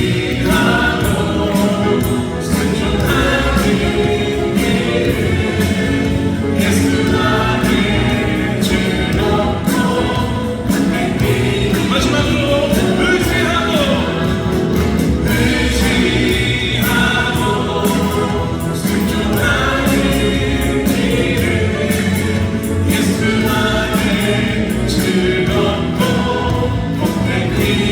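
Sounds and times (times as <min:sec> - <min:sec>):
band playing a steady beat: 0:00.0 - 0:27.9
choir singing gospel: 0:00.0 - 0:27.9.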